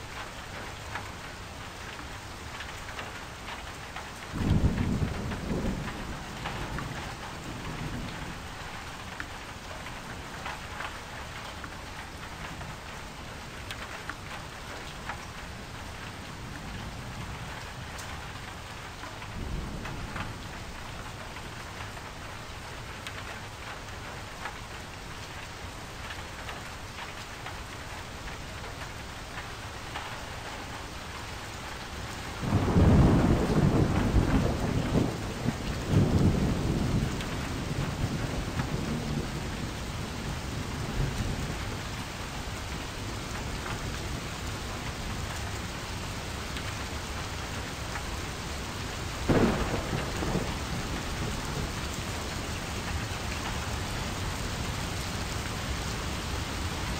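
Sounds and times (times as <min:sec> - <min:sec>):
steady rain: 0:00.0 - 0:56.9
thunder rumbling: 0:04.3 - 0:09.5, 0:32.3 - 0:42.7, 0:49.0 - 0:54.7.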